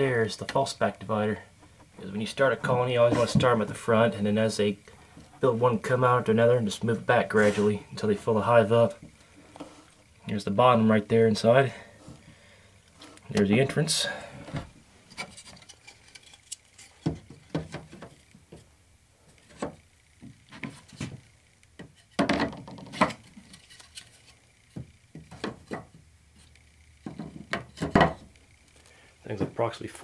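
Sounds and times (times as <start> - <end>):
wood knocking against wood: 24.7 - 26.0, 27.0 - 28.3.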